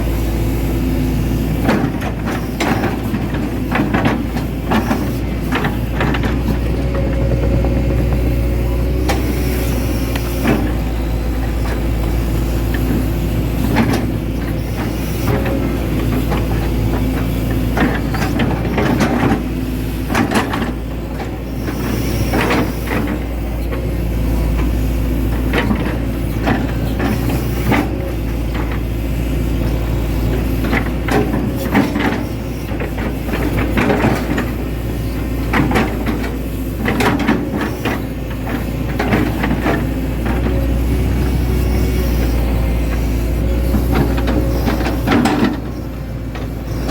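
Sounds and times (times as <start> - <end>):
excavator diesel engine running: 0.0 - 46.9
machine knocks and clatters: 5.5 - 9.4.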